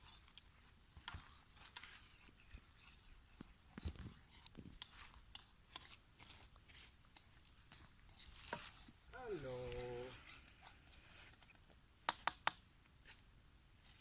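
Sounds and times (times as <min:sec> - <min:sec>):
campfire crackling: 0:04.7 - 0:10.5.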